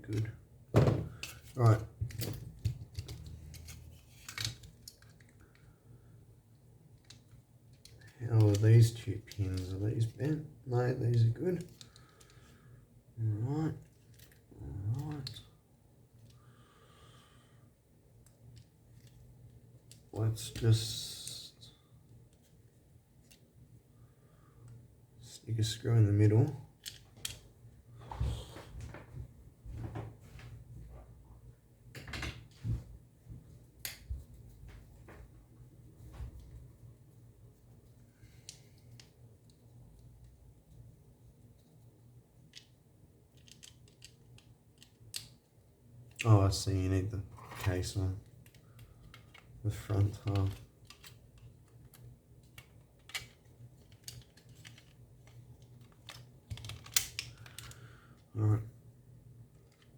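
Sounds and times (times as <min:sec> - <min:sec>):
plastic controller parts clicking: 0:48.4 - 0:57.8.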